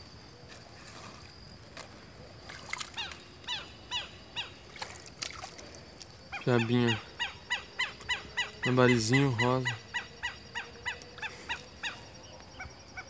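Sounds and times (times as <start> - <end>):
bird calling: 2.7 - 4.8, 6.3 - 13.0.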